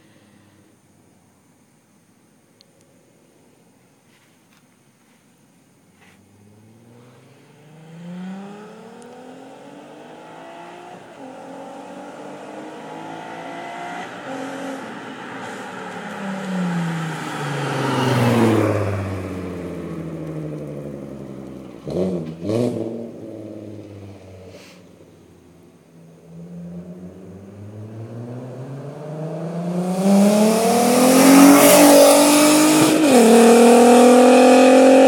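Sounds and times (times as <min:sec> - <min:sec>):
car engine revving: 0:06.3 - 0:35.0.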